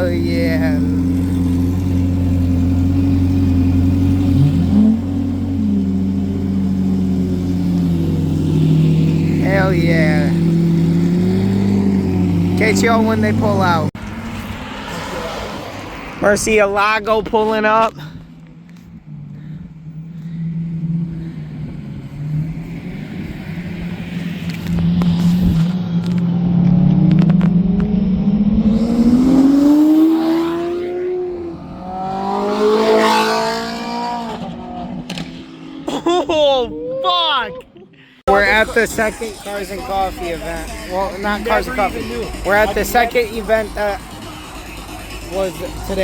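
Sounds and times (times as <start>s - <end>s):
car engine idling: 0.0s - 14.8s, 17.9s - 26.2s, 38.2s - 46.0s.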